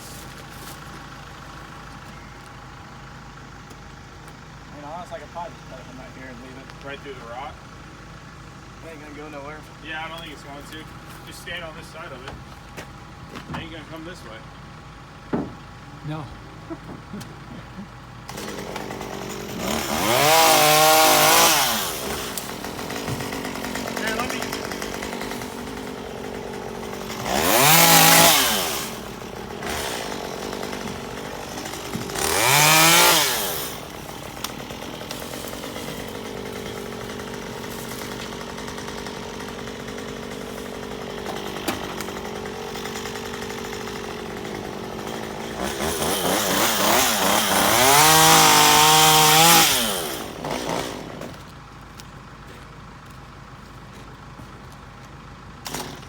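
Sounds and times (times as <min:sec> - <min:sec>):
chainsaw revving and cutting: 0:17.1 - 0:51.5, 0:55.6 - 0:56.0.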